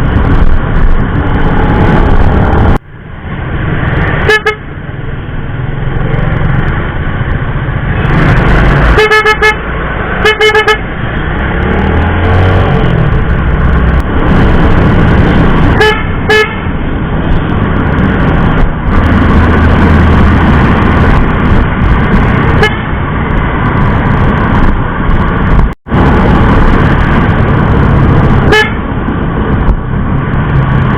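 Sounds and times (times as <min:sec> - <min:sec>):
road and vehicle rumble: 0:00.0 - 0:30.9
scooter electric horn toots: 0:04.2 - 0:04.6, 0:09.0 - 0:09.6, 0:10.2 - 0:10.8, 0:15.8 - 0:16.6, 0:28.5 - 0:28.8.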